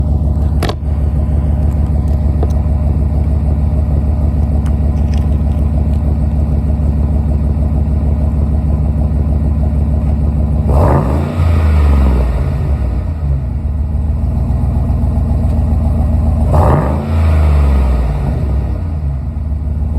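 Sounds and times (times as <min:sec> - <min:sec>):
truck engine idling: 0:00.0 - 0:19.9
engine revving: 0:10.6 - 0:13.7, 0:16.3 - 0:19.4.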